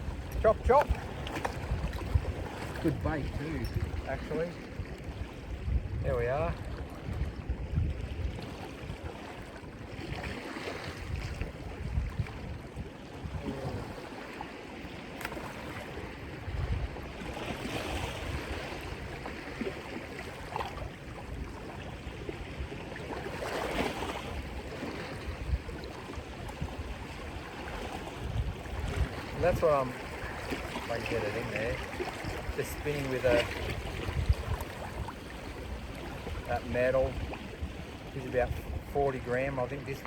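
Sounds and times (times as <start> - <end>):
surf washing against rocks: 0.0 - 7.4, 13.2 - 40.0
wind gusting on microphone: 0.0 - 40.0.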